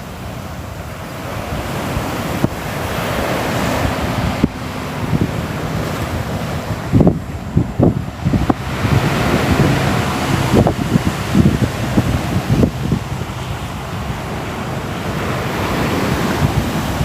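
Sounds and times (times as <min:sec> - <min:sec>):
sea waves washing in: 0:00.0 - 0:17.0
wind buffeting microphone: 0:00.0 - 0:17.0.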